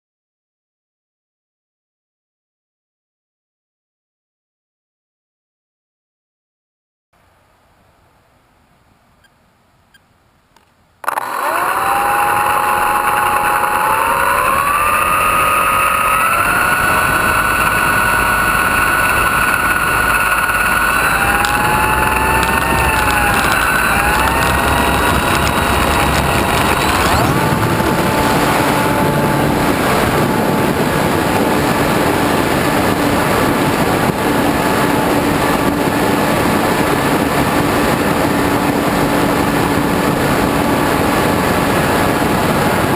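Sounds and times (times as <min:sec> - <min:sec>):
model airplane motor whine: 0:11.0 - 0:42.9
wind rush: 0:12.6 - 0:42.9.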